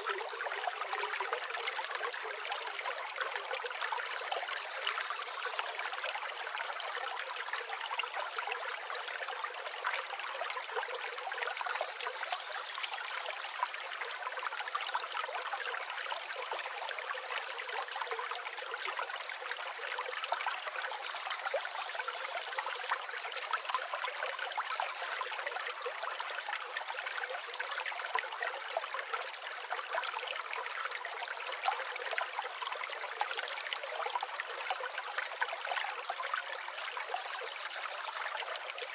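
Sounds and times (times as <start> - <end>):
river water flowing over stones: 0.0 - 38.9
faint high bird chirp: 23.4 - 25.0.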